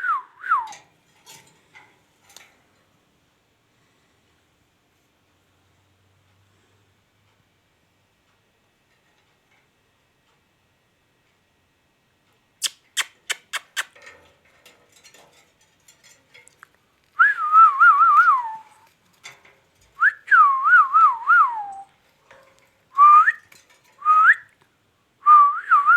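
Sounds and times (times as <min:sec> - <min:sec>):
parrot whistling a tune: 0:17.2 - 0:18.7, 0:20.0 - 0:21.9, 0:23.0 - 0:23.4, 0:24.0 - 0:24.5.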